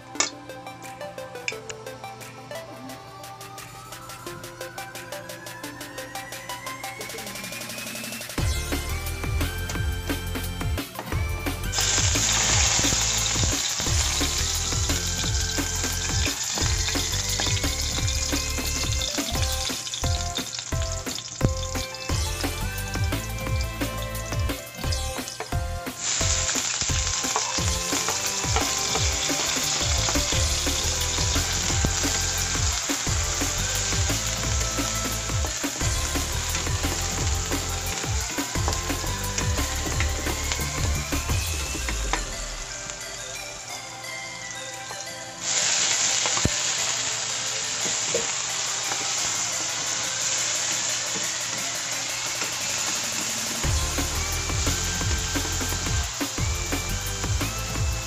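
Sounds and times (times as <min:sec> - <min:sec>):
onion sizzling in a frying pan: 0:11.2 - 0:42.6, 0:45.4 - 0:58.0.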